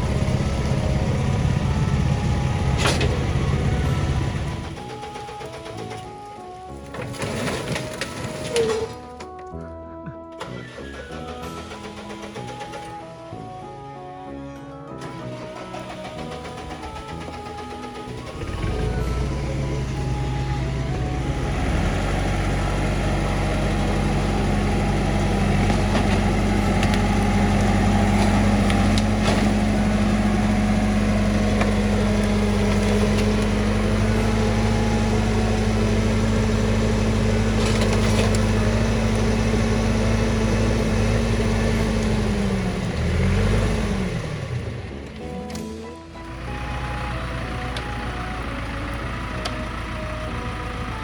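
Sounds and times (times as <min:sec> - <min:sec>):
tractor diesel engine running: 0:00.0 - 0:09.5, 0:10.3 - 0:14.0, 0:14.9 - 0:51.0.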